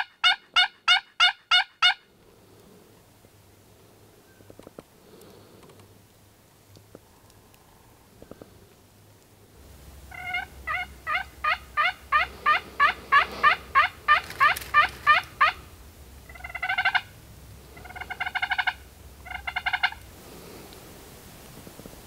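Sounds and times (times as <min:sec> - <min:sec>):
turkey yelping: 0:00.0 - 0:02.0, 0:10.1 - 0:15.7, 0:16.3 - 0:17.2, 0:17.8 - 0:20.0
rapid gobble-like notes: 0:10.0 - 0:17.2, 0:17.8 - 0:20.0.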